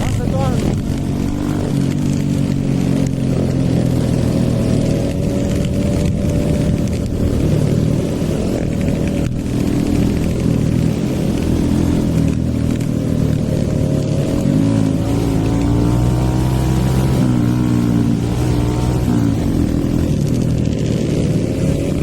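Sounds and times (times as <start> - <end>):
wind rush: 0.0 - 12.8
motorcycle engine running: 0.0 - 22.0.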